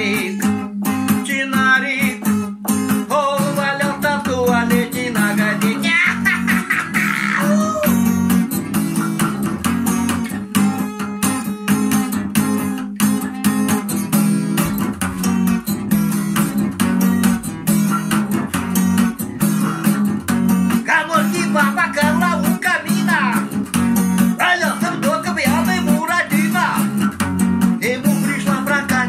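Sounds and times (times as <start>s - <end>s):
person singing: 0.0s - 2.4s, 3.0s - 9.2s, 9.8s - 12.2s, 20.8s - 23.6s, 24.3s - 27.0s, 27.8s - 29.0s
acoustic guitar strumming: 0.0s - 29.0s.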